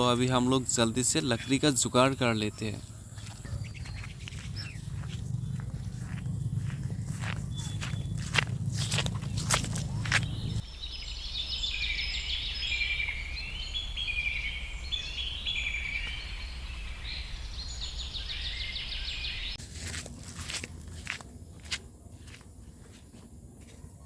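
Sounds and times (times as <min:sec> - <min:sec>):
birds chirping and singing: 0:00.0 - 0:20.0
low steady rumble: 0:02.8 - 0:10.8.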